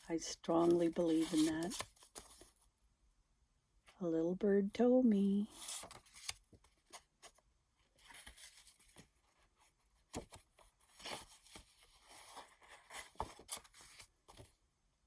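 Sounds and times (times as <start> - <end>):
cards sliding and rustling: 5.5 - 7.4, 8.0 - 9.2, 10.1 - 14.6.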